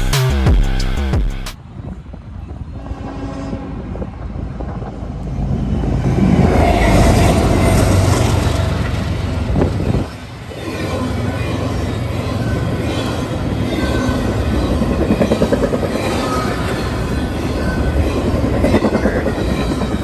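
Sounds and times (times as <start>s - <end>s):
train rumbling and clattering: 1.6s - 20.0s
train horn: 2.6s - 4.4s.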